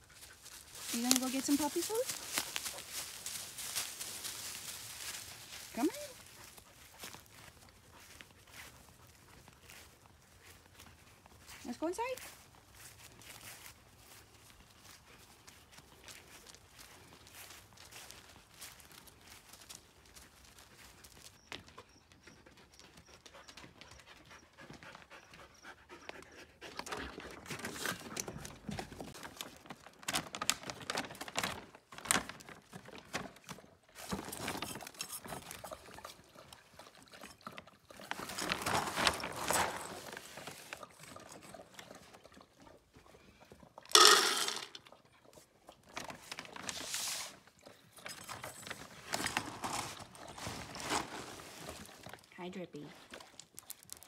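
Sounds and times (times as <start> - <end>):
dog panting: 22.1 - 27.6
plastic bag crinkling: 29.1 - 33.1, 38.0 - 40.8, 43.9 - 44.8, 48.6 - 52.3, 53.1 - 54.0.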